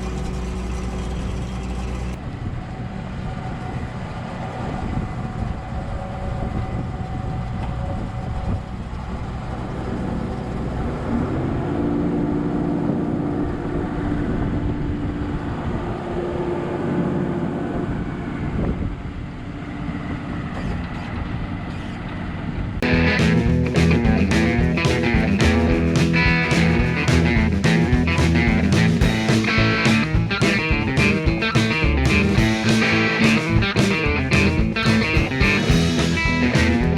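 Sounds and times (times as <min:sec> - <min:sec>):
diesel engine running: 0:00.0 - 0:36.9
music: 0:22.8 - 0:36.9
steady pitched whine: 0:22.8 - 0:36.9.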